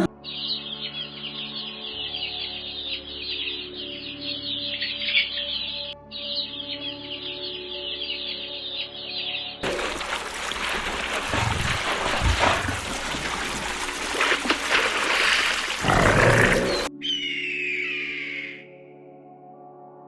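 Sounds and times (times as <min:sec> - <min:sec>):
rushing water-like hiss: 0:09.6 - 0:16.9
birds chirping: 0:09.6 - 0:18.2.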